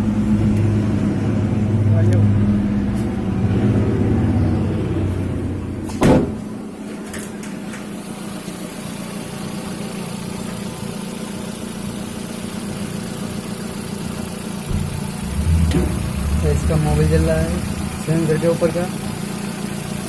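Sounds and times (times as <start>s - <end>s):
car engine idling: 2.6s - 20.0s
sharp knock: 14.7s - 18.2s.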